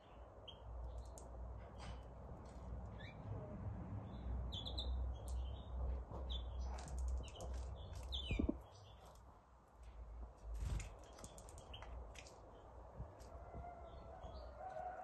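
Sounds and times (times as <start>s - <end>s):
small bird chirping: 0.0s - 1.3s, 2.9s - 3.3s, 4.1s - 9.2s, 10.6s - 12.7s.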